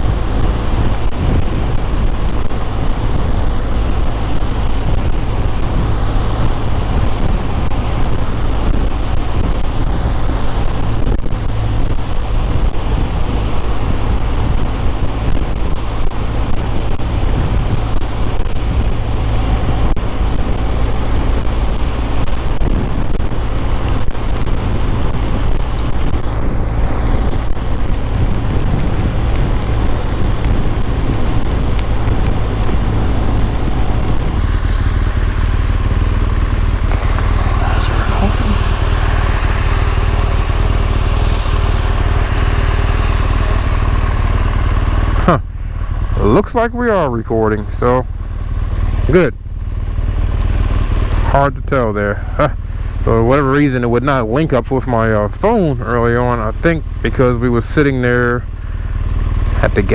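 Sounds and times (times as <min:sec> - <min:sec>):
wind buffeting microphone: 0:00.0 - 0:49.2
motorcycle road noise: 0:00.0 - 0:59.9.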